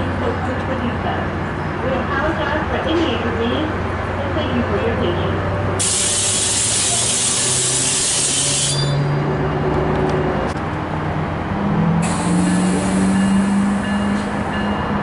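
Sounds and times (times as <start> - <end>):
loud air hiss: 5.8 - 8.9, 12.0 - 13.8.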